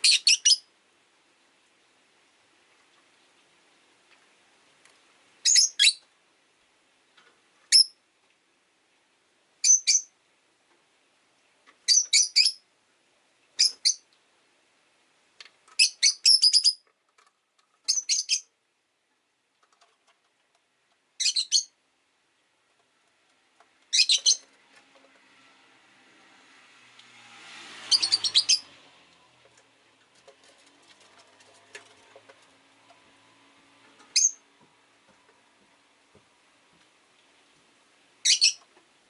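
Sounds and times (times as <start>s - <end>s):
lovebirds chirping: 0.0s - 0.7s, 5.4s - 6.1s, 7.7s - 8.0s, 9.6s - 10.2s, 11.8s - 12.7s, 13.6s - 14.1s, 15.7s - 16.9s, 17.7s - 18.6s, 21.1s - 21.8s, 23.8s - 24.6s, 27.8s - 28.8s, 33.9s - 34.5s, 38.2s - 38.8s.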